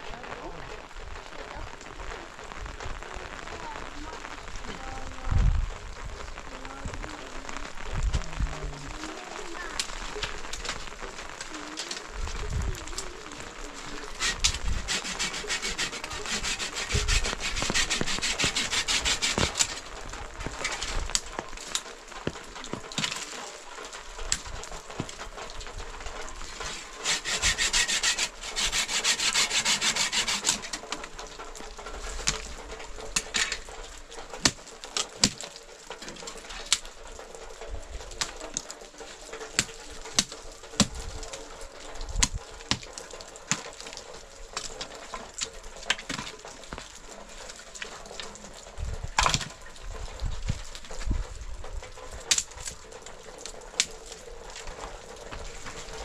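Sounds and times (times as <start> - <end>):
rhythmic scraping on wood: 9.8 - 49.5.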